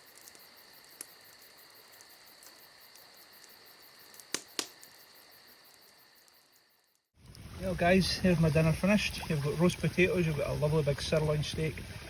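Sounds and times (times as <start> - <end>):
campfire crackles: 0.0 - 12.0
sharp pops: 4.1 - 5.0.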